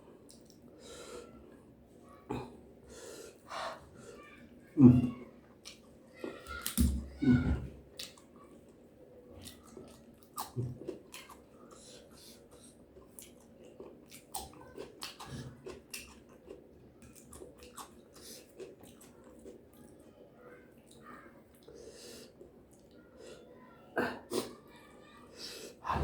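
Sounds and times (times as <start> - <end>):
person chewing crunchy food: 9.4 - 19.8.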